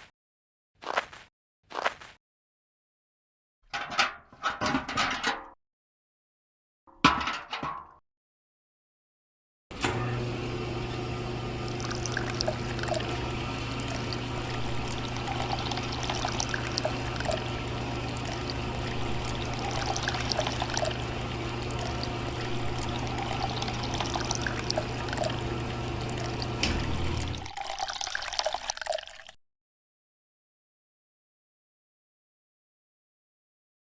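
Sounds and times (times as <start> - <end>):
small motor humming: 9.8 - 27.5
water pouring and trickling: 11.6 - 29.4.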